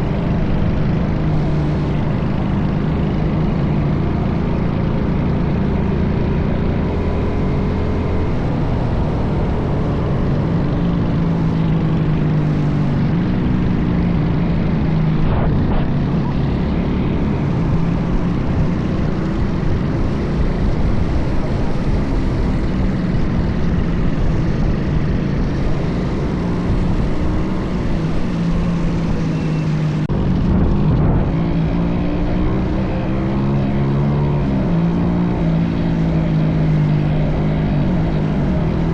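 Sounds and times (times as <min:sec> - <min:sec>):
wind on microphone: 0:12.7 - 0:38.9.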